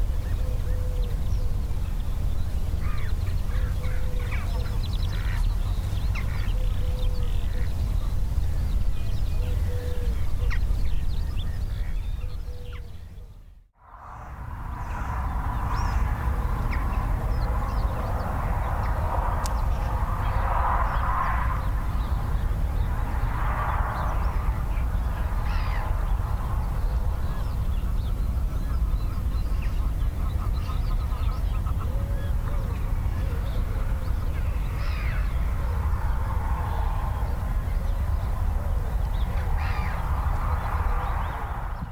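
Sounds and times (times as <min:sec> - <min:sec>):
birds calling: 0:00.0 - 0:13.5, 0:14.8 - 0:41.9
steady low rumble: 0:00.0 - 0:41.9.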